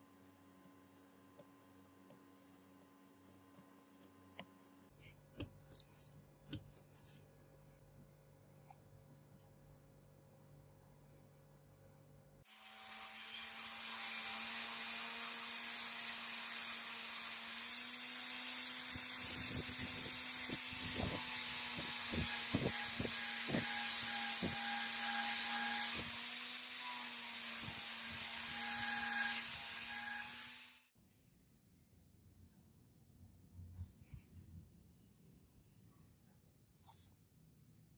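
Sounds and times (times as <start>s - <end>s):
power tool grinding surface: 12.5s - 30.9s.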